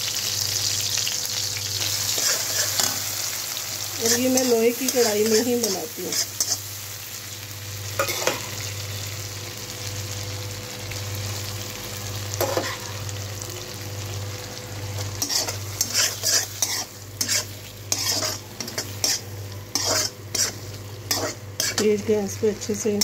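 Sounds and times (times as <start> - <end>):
chickpeas sizzling in oil: 0.0 - 23.0
spatula scraping pan: 2.1 - 3.0, 4.0 - 6.7, 15.2 - 22.0.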